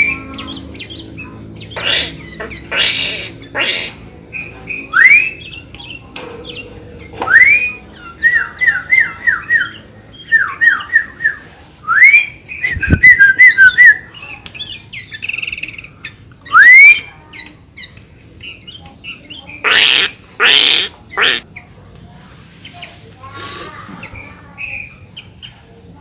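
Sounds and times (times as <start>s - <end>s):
harsh bird calls: 0.0s - 11.4s, 12.0s - 21.8s, 22.6s - 25.6s
bird singing whistled notes: 4.3s - 17.1s.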